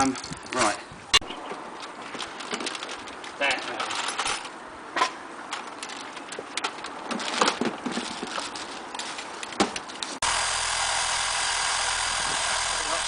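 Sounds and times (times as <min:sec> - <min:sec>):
car engine idling: 0:10.2 - 0:13.0.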